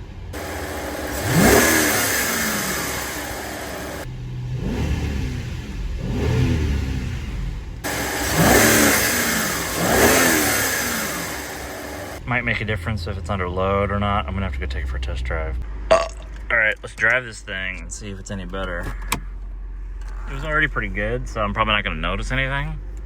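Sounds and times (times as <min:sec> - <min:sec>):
car engine revving: 0:00.0 - 0:15.6.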